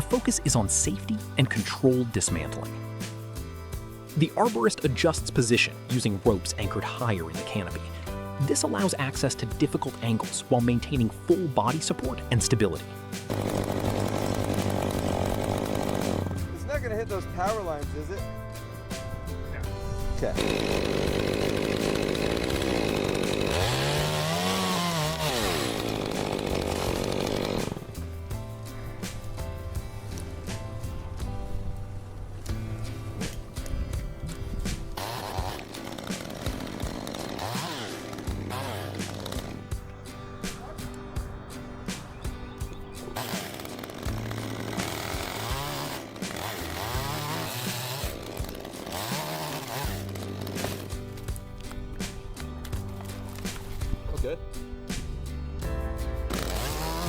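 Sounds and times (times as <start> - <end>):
chainsaw revving: 4.1 - 16.6, 20.2 - 28.0, 34.9 - 39.9, 43.1 - 51.7, 56.2 - 57.0.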